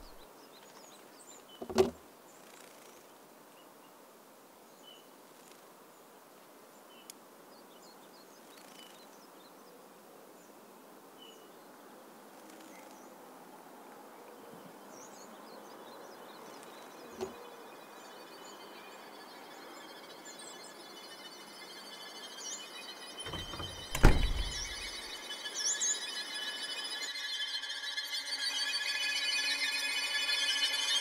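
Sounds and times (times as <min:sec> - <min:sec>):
heavy thump: 0:23.3 - 0:24.9.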